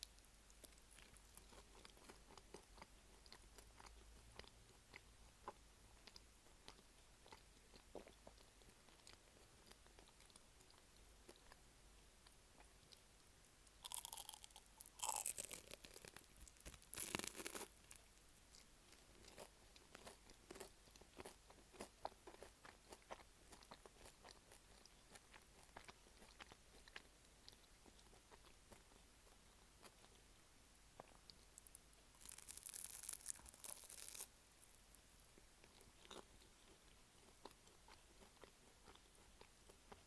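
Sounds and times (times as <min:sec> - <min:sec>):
chewing with wet clicks: 0:00.0 - 0:30.3, 0:31.0 - 0:40.0
crispy pastry crunching: 0:13.8 - 0:30.1, 0:31.0 - 0:35.0.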